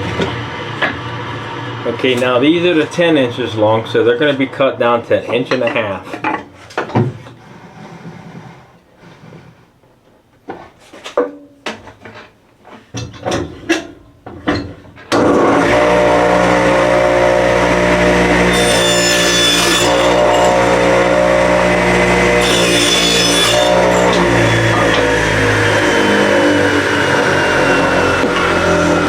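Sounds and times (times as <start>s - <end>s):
boards knocking and clattering: 5.3s - 7.4s, 10.5s - 15.3s
saw blade ripping wood: 15.1s - 29.0s
table saw running: 15.2s - 29.0s.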